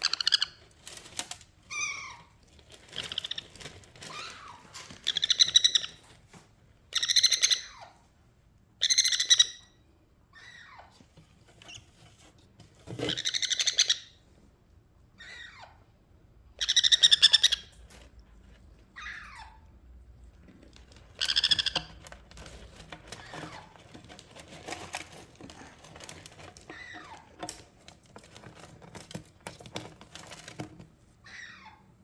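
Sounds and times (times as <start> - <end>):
parrots screeching: 0.0 - 0.6, 1.7 - 2.3, 3.0 - 6.0, 6.9 - 8.0, 8.8 - 10.9, 13.0 - 14.2, 15.2 - 15.8, 16.6 - 17.8, 19.0 - 19.7, 21.2 - 22.1, 26.0 - 27.3, 31.2 - 31.9.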